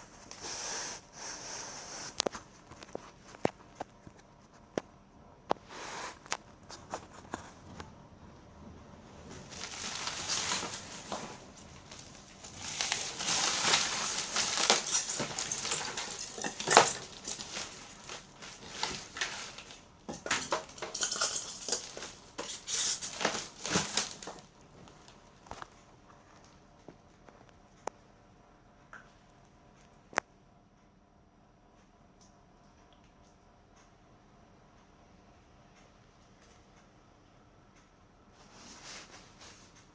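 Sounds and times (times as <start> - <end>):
packaging rustling and crinkling: 9.2 - 26.6.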